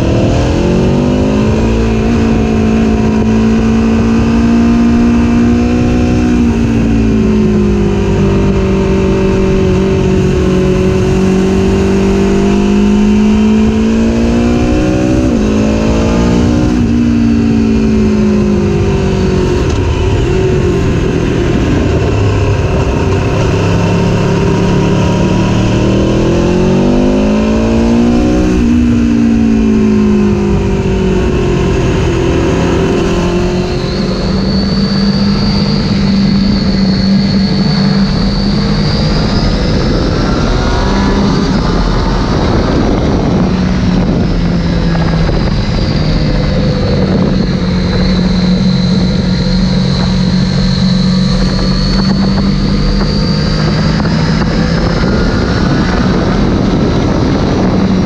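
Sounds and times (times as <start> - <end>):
engine with high whine: 0.0 - 58.0
motorcycle engine accelerating: 0.0 - 58.0
wind noise: 0.0 - 58.0.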